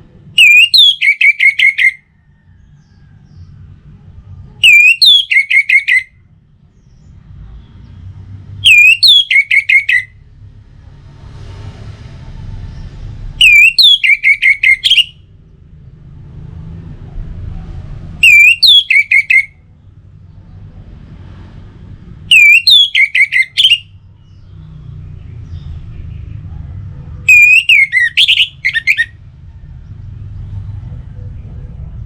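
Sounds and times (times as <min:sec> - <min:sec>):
thrush singing: 0:00.3 - 0:02.0, 0:08.6 - 0:10.1, 0:13.4 - 0:15.2, 0:18.2 - 0:19.6, 0:22.3 - 0:24.0, 0:27.3 - 0:29.2
low rumble: 0:10.2 - 0:13.5, 0:15.2 - 0:18.2, 0:29.1 - 0:32.0.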